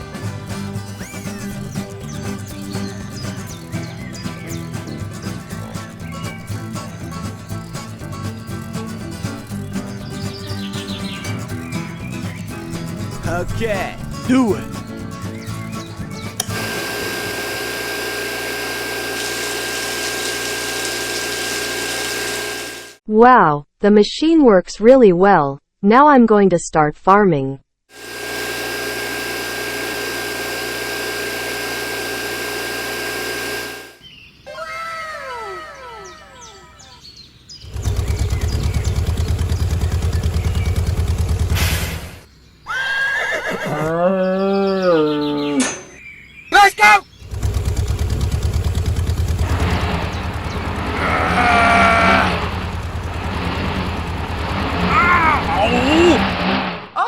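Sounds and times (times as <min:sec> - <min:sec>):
toy tractor engine chugging: 0:00.0 - 0:23.0, 0:27.9 - 0:34.0, 0:37.6 - 0:41.8, 0:47.2 - 0:56.9
electric water pump whining: 0:00.4 - 0:23.0, 0:27.9 - 0:34.1, 0:37.6 - 0:42.3, 0:47.2 - 0:57.0
high wavering animal-like call: 0:51.0 - 0:52.4.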